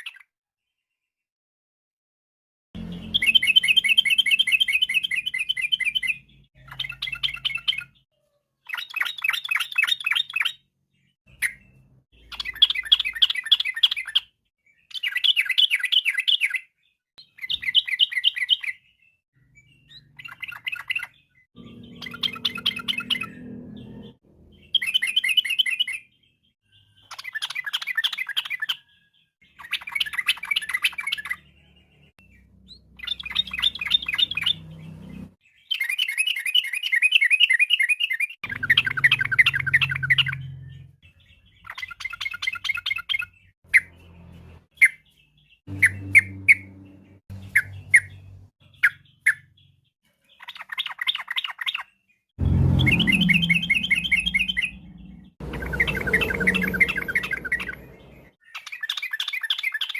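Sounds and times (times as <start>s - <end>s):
bird singing bubbling notes: 19.6s - 26.0s, 38.5s - 41.0s, 52.4s - 58.4s.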